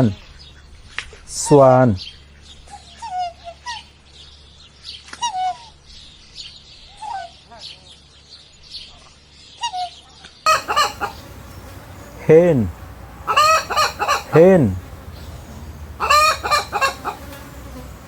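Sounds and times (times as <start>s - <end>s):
small birds chirping: 0.0s - 18.0s
hen clucking: 10.5s - 18.0s
swan calling: 10.5s - 18.0s.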